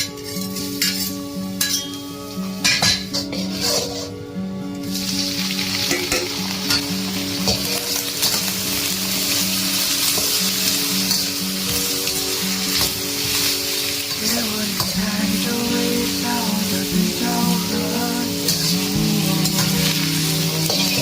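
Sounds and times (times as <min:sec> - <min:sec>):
vegetables sizzling in a pan: 0:00.0 - 0:04.1, 0:04.8 - 0:21.0
background music: 0:00.0 - 0:21.0
stirring strokes in a pan: 0:03.1 - 0:04.2.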